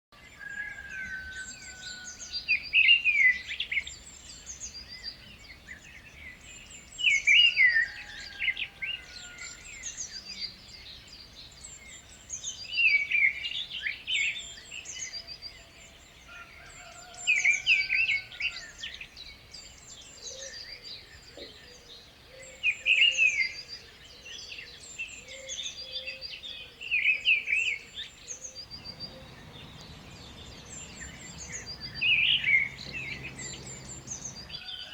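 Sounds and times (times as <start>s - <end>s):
bird repeating loud song: 27.5s - 34.7s.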